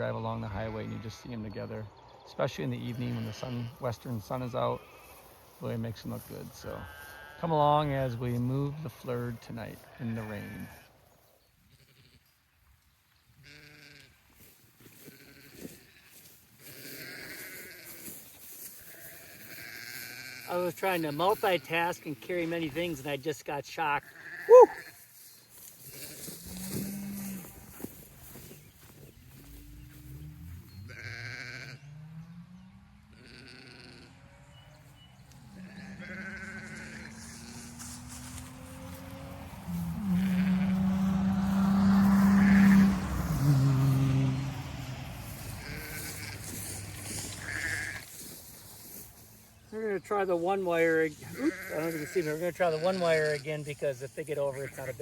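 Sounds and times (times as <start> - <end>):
sheep bleating: 2.8 - 3.9, 4.8 - 5.4, 6.6 - 7.6, 8.6 - 11.0, 11.7 - 12.3, 13.4 - 23.2, 23.8 - 25.2, 25.8 - 28.4, 30.9 - 31.8, 33.1 - 34.4, 35.4 - 44.6, 45.2 - 49.0, 50.6 - 53.8, 54.4 - 55.0.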